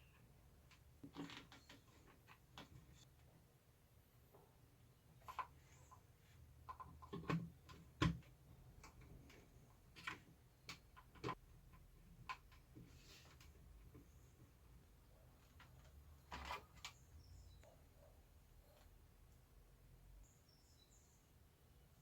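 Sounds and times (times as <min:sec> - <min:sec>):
plastic parts clicking and knocking: 0:00.1 - 0:03.0, 0:06.6 - 0:14.6, 0:15.4 - 0:17.0.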